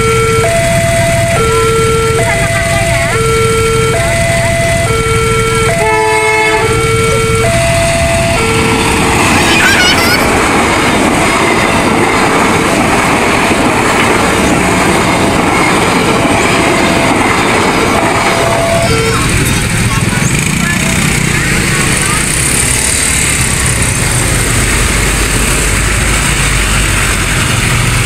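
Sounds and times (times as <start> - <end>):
level crossing alarm two-tone signal: 0.0 - 9.0, 16.2 - 19.4
passing train rumble: 0.0 - 28.0
train horn blast: 4.8 - 8.9, 18.2 - 19.4.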